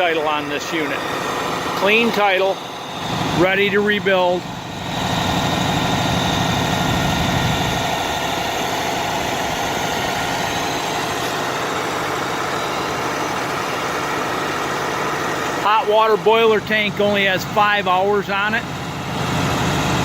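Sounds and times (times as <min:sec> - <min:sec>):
diesel truck engine running: 0:00.0 - 0:20.0
thin high whine: 0:00.1 - 0:14.5.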